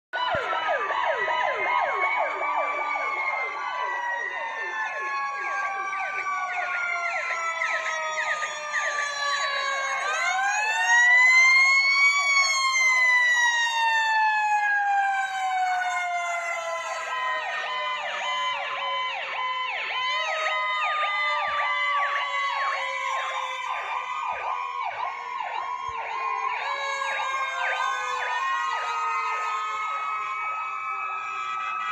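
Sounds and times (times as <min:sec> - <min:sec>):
fire truck sirens wailing: 0:00.1 - 0:31.9
siren yelps: 0:00.2 - 0:31.9.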